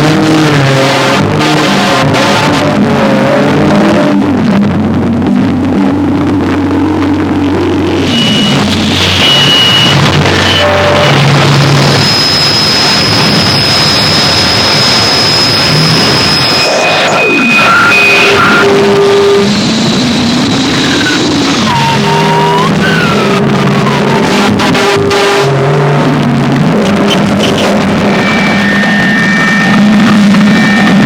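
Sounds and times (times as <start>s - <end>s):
harsh electronic noise music: 0.0s - 31.0s
falling pitch sweeps: 27.6s - 31.0s.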